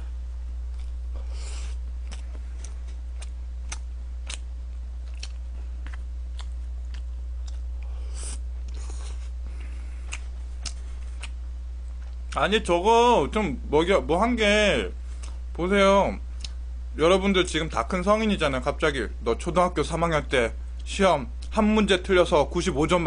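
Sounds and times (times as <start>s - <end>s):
man chewing food: 0.0s - 12.4s
low electrical hum: 0.0s - 23.0s
mouth clicks and smacks: 1.7s - 8.8s, 9.5s - 11.4s, 16.4s - 16.6s.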